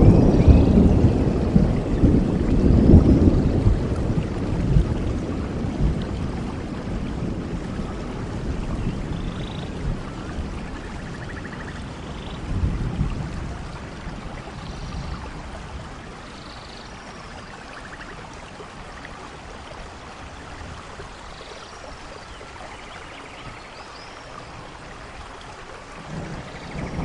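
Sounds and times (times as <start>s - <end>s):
thunder rumble: 0.0s - 17.0s, 26.0s - 27.0s
falling rain: 0.0s - 27.0s
running water: 0.0s - 27.0s.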